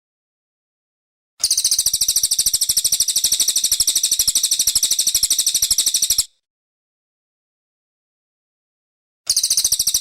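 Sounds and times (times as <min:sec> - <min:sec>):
songbird fast trill: 0:01.4 - 0:06.3, 0:09.3 - 0:10.0.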